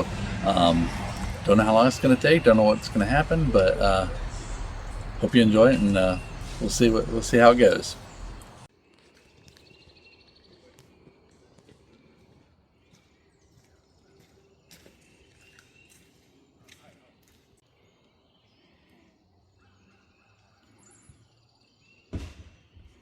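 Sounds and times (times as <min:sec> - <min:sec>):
faint bird chirps: 0:00.0 - 0:08.7.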